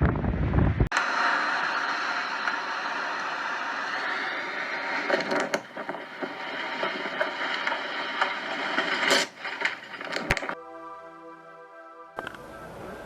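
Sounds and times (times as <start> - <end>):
storm wind rushing: 0.0 - 10.6
sharp knocks and cracks: 4.9 - 10.6
sustained musical chord: 10.6 - 13.0.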